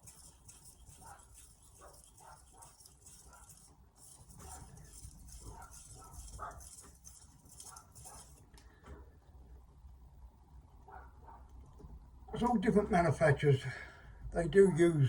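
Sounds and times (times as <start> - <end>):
knife scraping on whetstone: 0.0 - 8.4.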